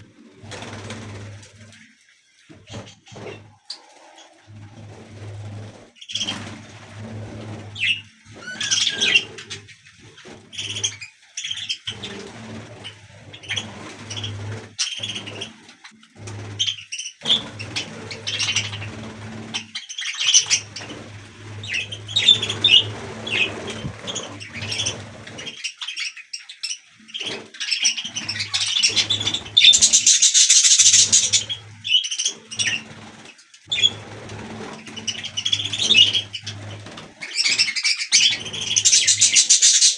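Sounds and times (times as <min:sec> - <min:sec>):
wings flapping: 0:00.4 - 0:01.8, 0:11.9 - 0:25.6, 0:27.2 - 0:39.9
budgerigars chirping: 0:07.8 - 0:09.6, 0:16.6 - 0:19.0, 0:21.6 - 0:26.5, 0:27.2 - 0:32.9, 0:34.9 - 0:39.9.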